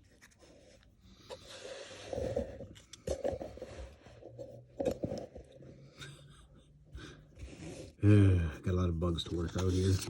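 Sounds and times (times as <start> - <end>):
handling rustling and scraping: 0.0 - 5.9, 9.0 - 10.0.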